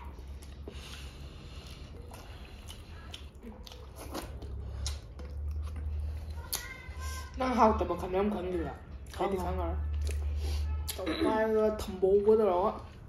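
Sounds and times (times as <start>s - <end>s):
chewing and biting food: 0.0s - 7.0s.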